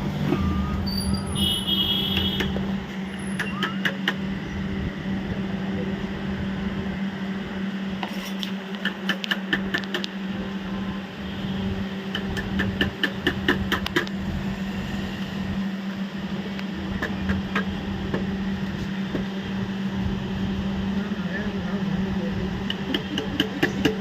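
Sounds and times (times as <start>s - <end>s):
steady low hum: 0.0s - 24.0s
metallic clicks of hand tools: 8.4s - 10.1s.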